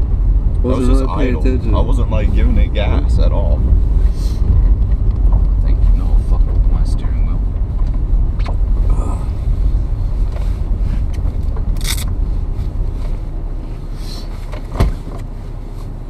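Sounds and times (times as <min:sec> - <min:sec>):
low engine and road rumble: 0:00.0 - 0:16.0
thump: 0:14.5 - 0:15.2.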